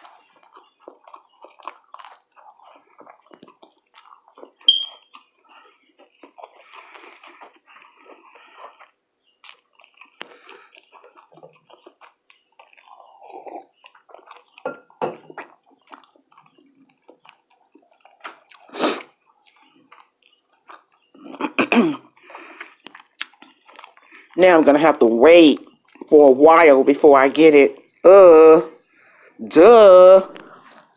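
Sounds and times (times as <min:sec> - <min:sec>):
wet chewing: 0:00.0 - 0:29.6, 0:30.3 - 0:30.9.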